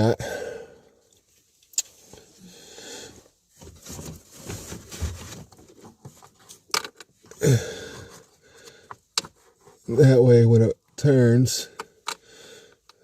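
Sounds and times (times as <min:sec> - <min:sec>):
hands rustling and scraping: 0:03.5 - 0:06.7.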